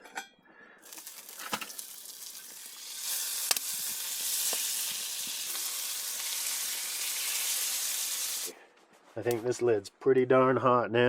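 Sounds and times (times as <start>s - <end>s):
pan sizzling: 0.8s - 8.5s.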